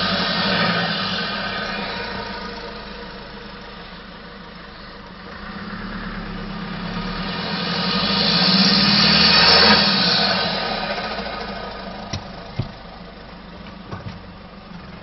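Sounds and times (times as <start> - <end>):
turbocharged engine revving: 0.0 - 13.5.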